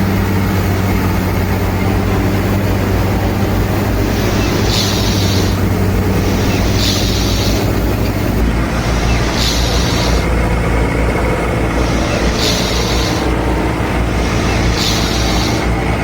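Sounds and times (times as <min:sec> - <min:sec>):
hissing: 0:00.0 - 0:16.0
small machine humming: 0:00.0 - 0:16.0.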